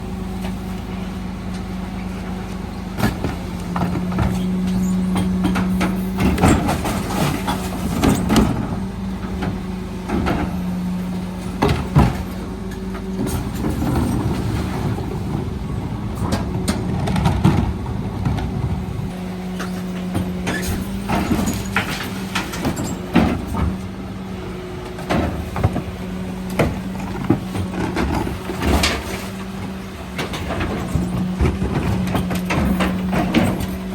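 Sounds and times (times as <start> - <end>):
refuse truck engine humming: 0.0 - 33.9
wheelie bins knocking and clattering: 0.3 - 33.9.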